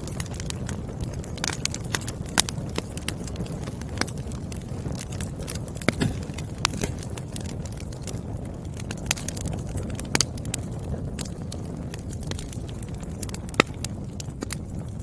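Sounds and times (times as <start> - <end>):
firewood crackling and popping: 0.0 - 15.0
low rumble of flames: 0.0 - 15.0.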